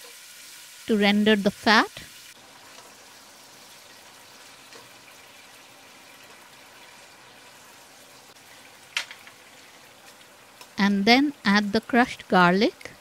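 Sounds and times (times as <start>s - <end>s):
pancetta sizzling in oil: 0.0s - 13.0s.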